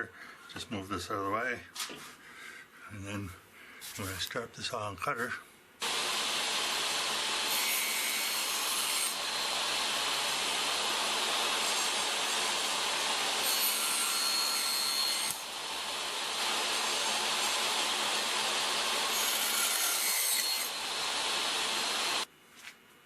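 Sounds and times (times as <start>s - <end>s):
saw blade cutting wood: 5.8s - 22.3s
table saw running: 5.8s - 22.3s.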